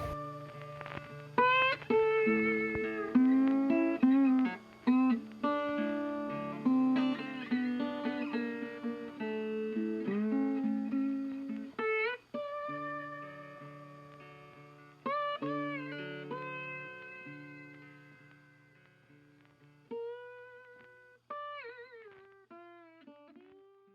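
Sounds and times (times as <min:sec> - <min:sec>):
plucked acoustic guitar: 0:00.0 - 0:14.2.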